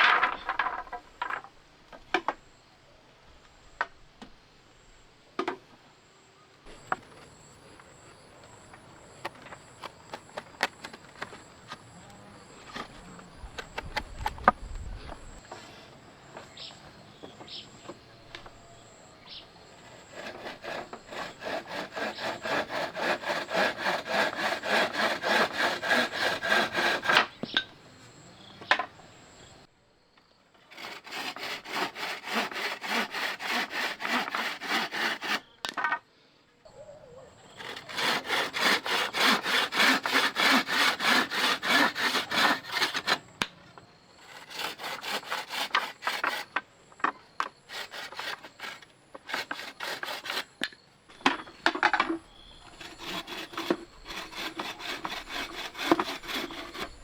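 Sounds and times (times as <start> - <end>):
hand saw cutting wood: 19.8 - 27.6, 30.7 - 35.5, 37.4 - 43.4, 44.2 - 46.6, 47.7 - 57.0.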